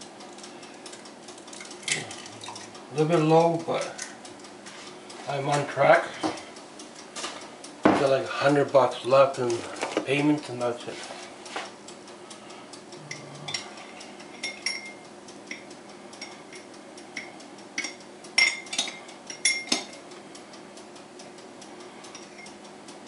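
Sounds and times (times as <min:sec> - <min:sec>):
dishes and utensils clinking: 0:13.1 - 0:15.6, 0:17.2 - 0:20.0.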